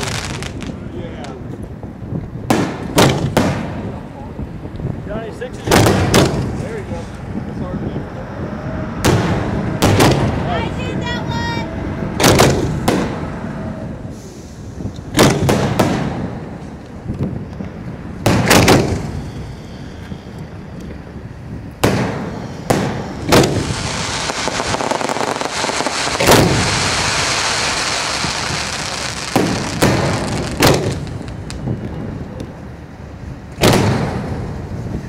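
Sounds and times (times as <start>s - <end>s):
fireworks bangs: 0.0s - 4.5s, 5.6s - 7.0s, 8.8s - 19.9s, 21.7s - 32.6s, 33.5s - 35.0s
dense hiss: 12.6s - 15.2s.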